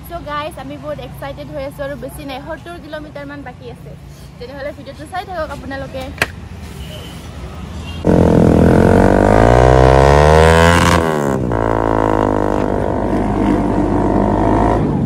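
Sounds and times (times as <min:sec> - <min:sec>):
motorcycle engine accelerating: 0:08.0 - 0:15.0.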